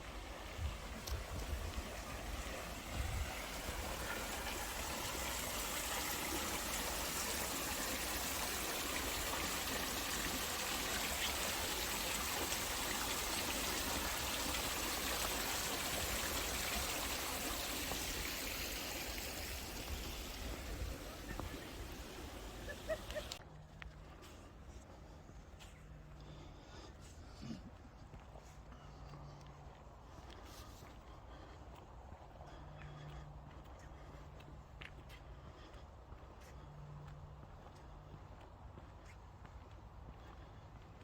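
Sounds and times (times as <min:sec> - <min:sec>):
running water rushing: 0:00.0 - 0:23.4.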